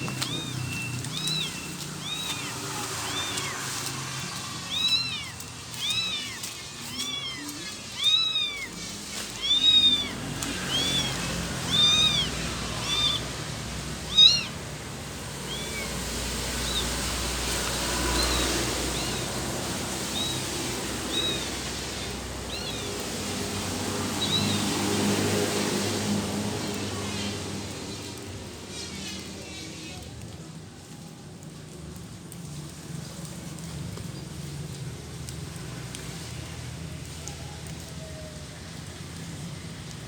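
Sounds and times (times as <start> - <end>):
kittens meowing: 0.0 - 25.3.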